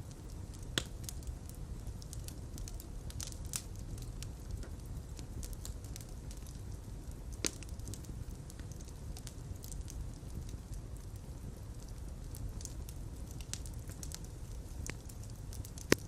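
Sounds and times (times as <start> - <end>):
fire crackling and popping: 0.0 - 16.0.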